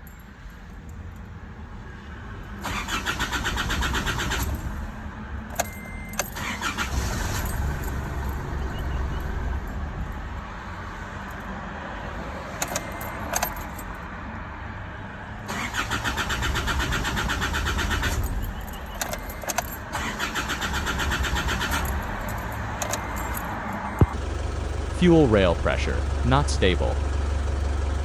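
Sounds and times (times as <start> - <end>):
starter motor cranking engine: 2.7 - 4.6, 6.2 - 8.3, 15.5 - 28.0.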